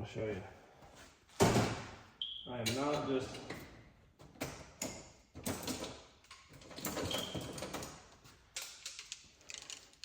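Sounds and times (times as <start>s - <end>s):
tools clattering in metal cart: 2.7s - 10.0s.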